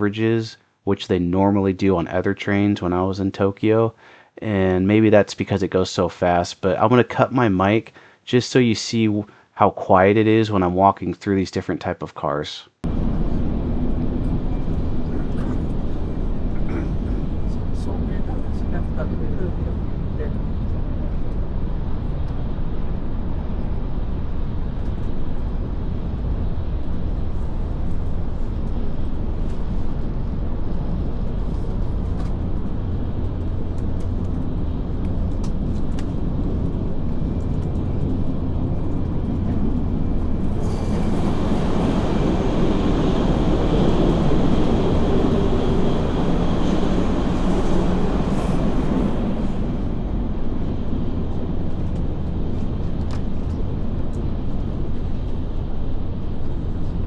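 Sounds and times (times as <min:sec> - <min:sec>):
train rumble and hiss inside: 0:12.9 - 0:57.0.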